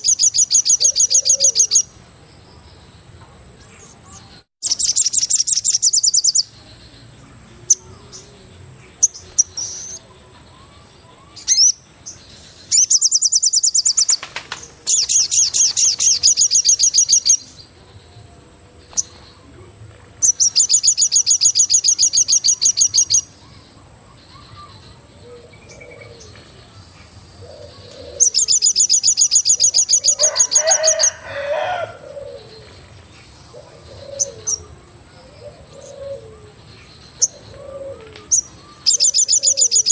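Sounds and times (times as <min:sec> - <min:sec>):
bird trilling: 0:00.0 - 0:01.9, 0:11.2 - 0:11.8, 0:12.7 - 0:17.5, 0:20.2 - 0:23.4, 0:27.4 - 0:32.7, 0:33.5 - 0:36.5, 0:37.2 - 0:39.9
low cooing calls: 0:00.0 - 0:01.9, 0:24.3 - 0:26.6, 0:27.4 - 0:39.9.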